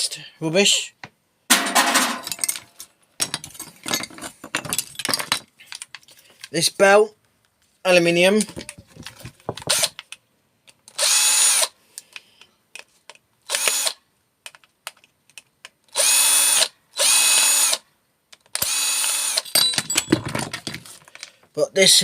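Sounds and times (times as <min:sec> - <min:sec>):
cordless drill whining: 0:09.6 - 0:09.9, 0:10.9 - 0:11.8, 0:13.5 - 0:14.0, 0:15.9 - 0:17.8, 0:18.6 - 0:19.4.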